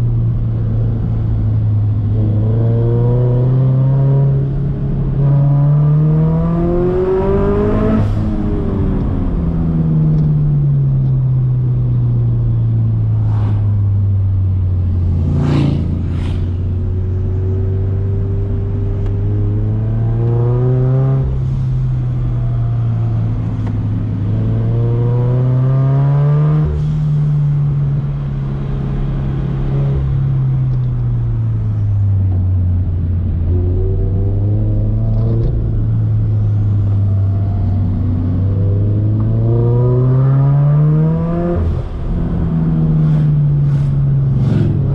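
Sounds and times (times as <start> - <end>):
car engine revving under load: 11.1 - 44.9.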